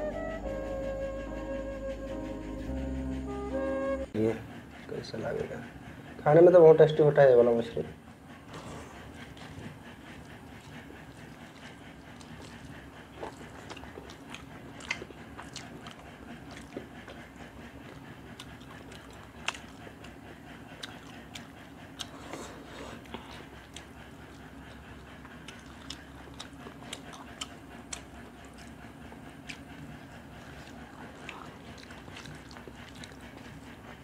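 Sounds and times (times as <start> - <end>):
steady low hum: 0.0 - 6.6
fingers working rice on plates: 8.4 - 34.0
wet chewing and lip-smacking: 8.5 - 34.0.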